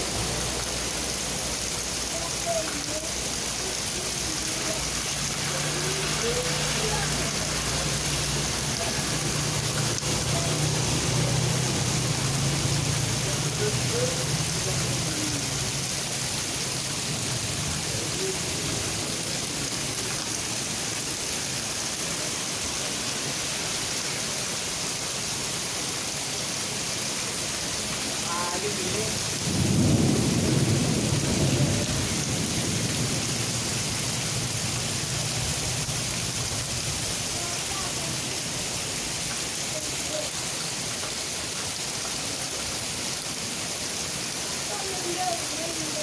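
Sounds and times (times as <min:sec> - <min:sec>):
heavy rain hissing: 0:00.0 - 0:46.0
thunder rumbling: 0:29.4 - 0:35.8.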